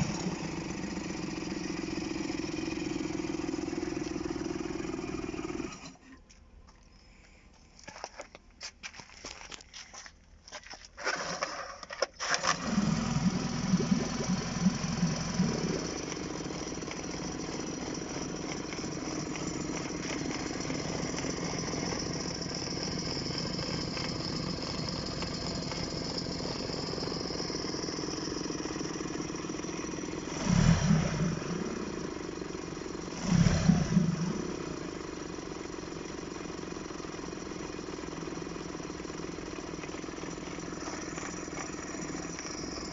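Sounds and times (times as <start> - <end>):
outboard motor starting and idling: 0.0 - 6.3, 11.0 - 42.9
outboard motor throttle blips: 12.4 - 35.3.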